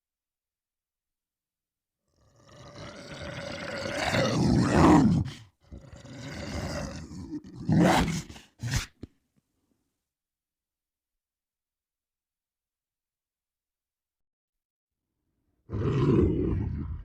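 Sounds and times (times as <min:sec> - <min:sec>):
monster roar: 0:02.2 - 0:08.9, 0:15.7 - 0:17.0.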